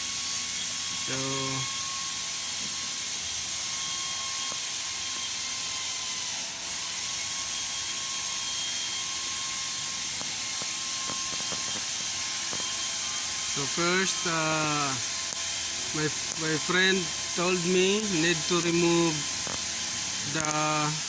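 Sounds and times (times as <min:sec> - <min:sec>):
steady mechanical hiss: 0:00.0 - 0:07.0, 0:08.4 - 0:21.0
faint high whine: 0:00.9 - 0:02.2, 0:07.3 - 0:21.0.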